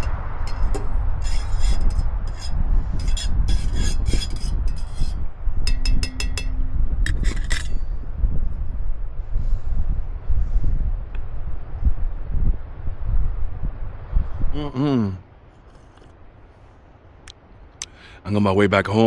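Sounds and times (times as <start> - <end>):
scraping and clinking sounds: 0.0 - 7.9
wind buffeting the microphone: 0.0 - 17.6.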